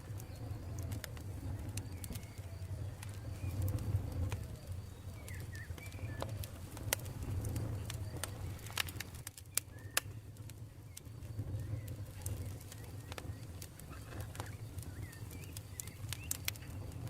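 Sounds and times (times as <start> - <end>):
campfire crackling and popping: 0.0 - 17.0
bird chirps: 4.8 - 6.4, 9.5 - 10.3, 10.9 - 16.5.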